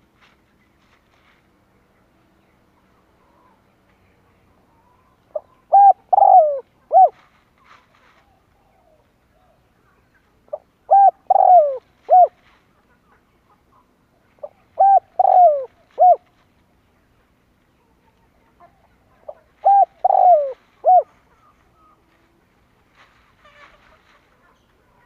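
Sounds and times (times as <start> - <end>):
dove cooing: 4.8 - 7.2, 10.5 - 12.4, 14.4 - 16.2, 19.0 - 22.0.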